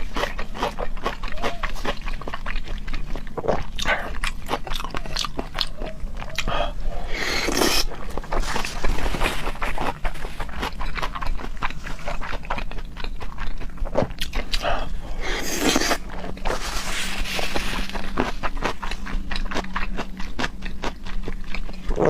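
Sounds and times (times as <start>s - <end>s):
wet chewing and smacking: 0.0s - 22.0s.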